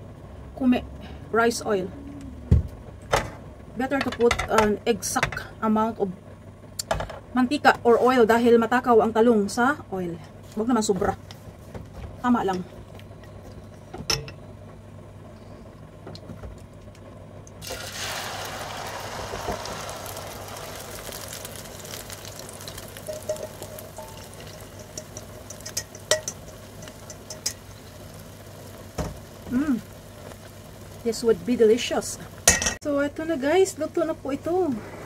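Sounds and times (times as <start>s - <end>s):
batter sizzling in hot oil: 17.6s - 34.6s
utensils tapping: 22.7s - 27.8s.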